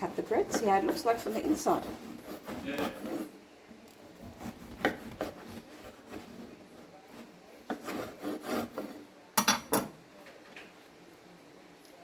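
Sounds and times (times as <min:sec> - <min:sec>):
bread knife sawing loaf: 0:00.0 - 0:03.3, 0:04.2 - 0:06.5, 0:07.7 - 0:09.0.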